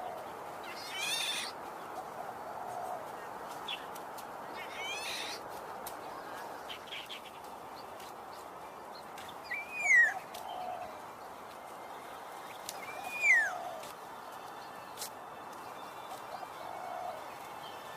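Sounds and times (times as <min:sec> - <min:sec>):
bird calling: 0:00.0 - 0:07.5, 0:09.2 - 0:17.9
steady background hiss: 0:00.0 - 0:17.9.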